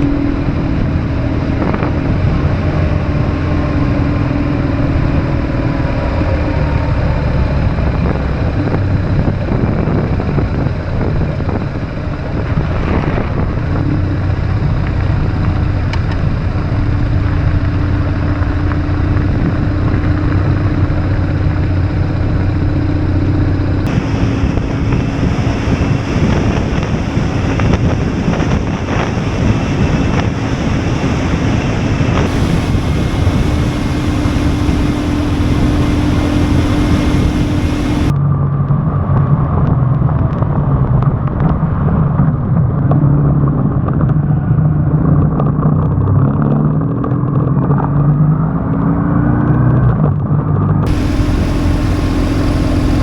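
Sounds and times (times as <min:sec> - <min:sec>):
wind rushing over microphone: 0:23.8 - 0:38.1, 0:50.9 - 0:53.0
motorcycle engine running: 0:23.9 - 0:38.1, 0:50.9 - 0:53.0.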